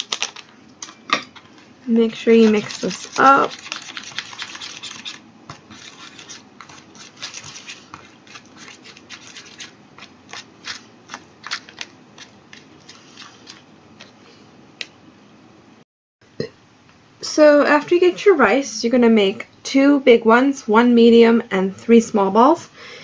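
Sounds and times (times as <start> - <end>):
plastic spoon scraping in tray: 2.1 - 14.2.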